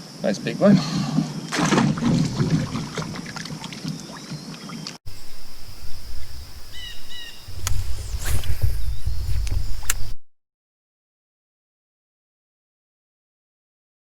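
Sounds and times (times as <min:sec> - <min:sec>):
water splashing against kayak: 0:01.2 - 0:05.0
insect buzzing: 0:05.1 - 0:10.2.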